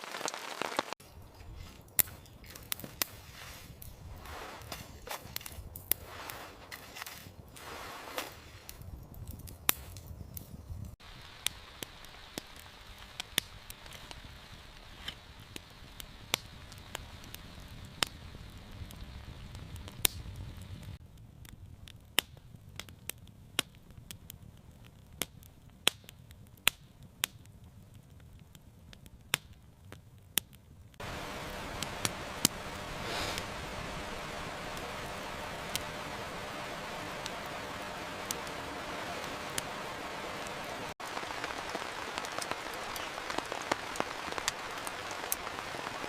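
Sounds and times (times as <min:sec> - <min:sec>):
steady hiss: 0:00.0 - 0:08.9, 0:09.7 - 0:21.0, 0:31.0 - 0:46.0
wood fire crackling and popping: 0:00.0 - 0:46.0.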